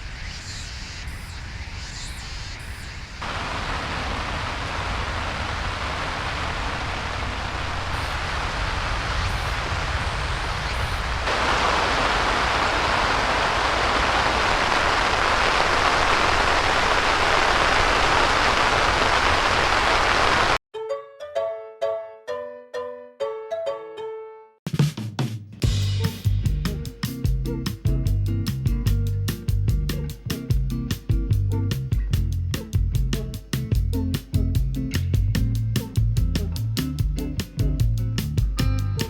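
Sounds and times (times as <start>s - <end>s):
heavy rain falling: 3.2s - 20.6s.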